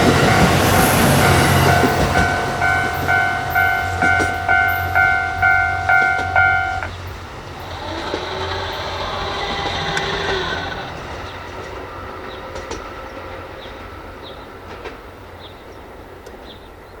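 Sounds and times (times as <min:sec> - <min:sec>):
electronic warning bell: 0:00.0 - 0:06.9
rail-joint clicks: 0:00.0 - 0:13.0, 0:14.6 - 0:15.2
train wheels on rails: 0:00.0 - 0:17.0.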